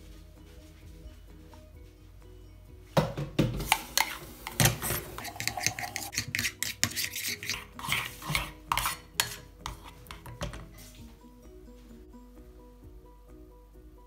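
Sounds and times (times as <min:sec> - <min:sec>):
metal spoon scraping saucepan: 0:03.6 - 0:10.8.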